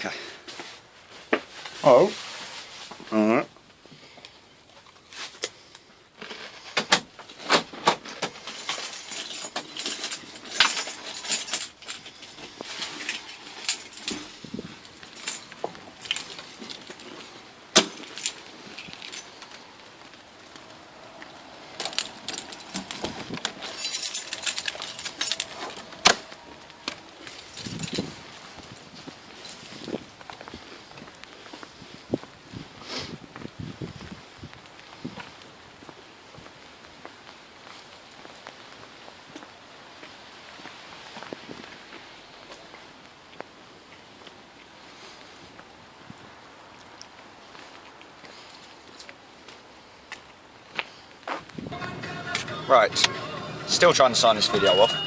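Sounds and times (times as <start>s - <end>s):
handling clicks and knocks: 6.2s - 28.8s
keys jingling: 8.4s - 17.2s, 17.8s - 19.7s, 21.7s - 30.0s, 51.8s - 55.0s.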